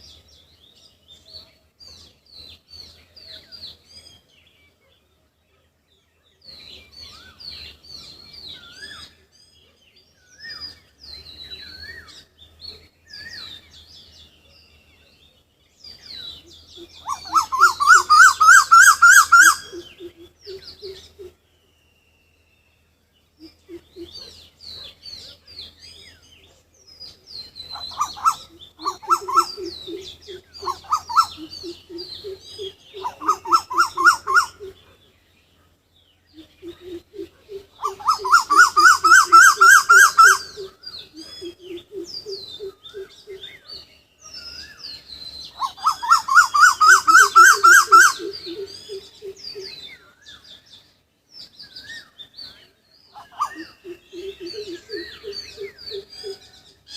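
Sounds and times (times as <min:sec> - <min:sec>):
birds chirping and whistling: 0:06.5 - 0:56.9
bird repeating rising notes: 0:45.6 - 0:49.6.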